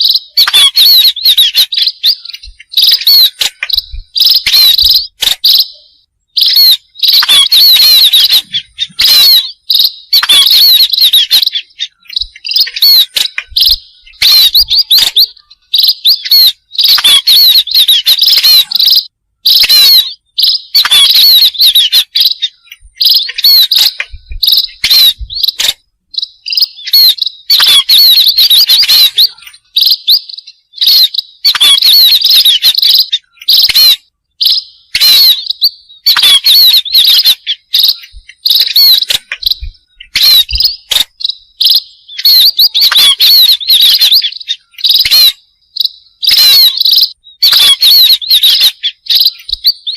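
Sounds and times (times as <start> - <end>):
small birds chirping rapidly: 0.0 - 49.9.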